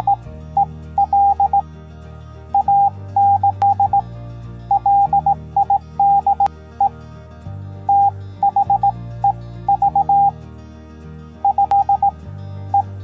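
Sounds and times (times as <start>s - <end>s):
morse code beeps: 0.0s - 1.6s, 2.6s - 4.0s, 4.7s - 6.9s, 7.9s - 10.3s, 11.4s - 12.1s
background music with low bass: 0.0s - 13.0s.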